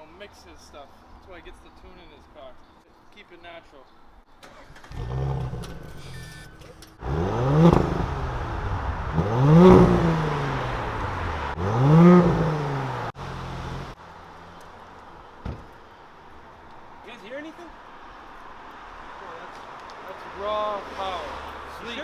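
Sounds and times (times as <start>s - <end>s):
car engine revving and idling: 7.0s - 14.0s.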